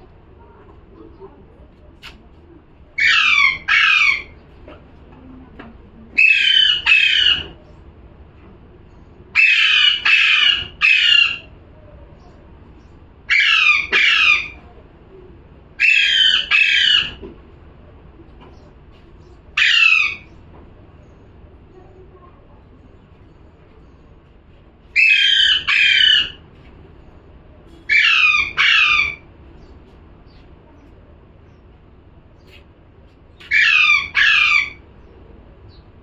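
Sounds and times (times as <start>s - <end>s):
parrot squawking: 3.0s - 4.4s, 6.2s - 7.6s, 9.3s - 11.5s, 13.3s - 14.6s, 15.8s - 17.2s, 19.6s - 20.4s, 24.9s - 26.4s, 27.8s - 29.3s, 33.4s - 34.8s.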